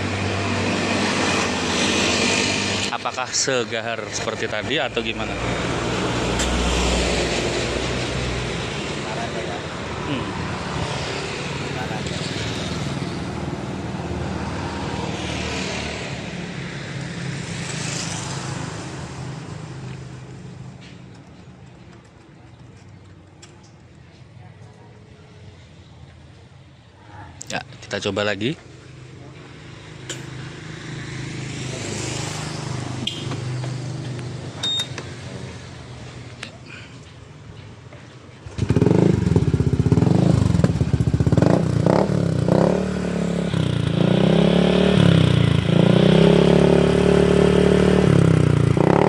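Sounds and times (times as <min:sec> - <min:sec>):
short high beep: 0:34.6 - 0:35.0
scooter engine idling: 0:38.4 - 0:41.4
scooter engine running: 0:38.4 - 0:49.0.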